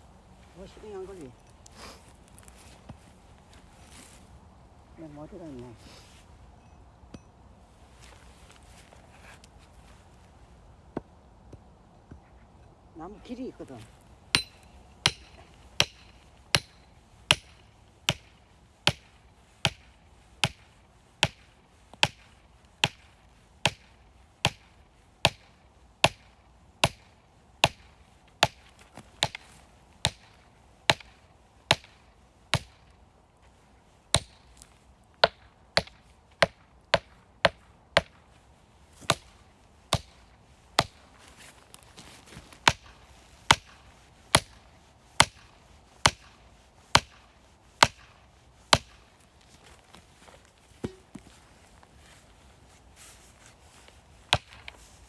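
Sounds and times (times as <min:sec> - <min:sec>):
firewood being chopped: 0:13.9 - 0:33.0, 0:34.1 - 0:38.3, 0:39.0 - 0:51.5, 0:54.3 - 0:54.9.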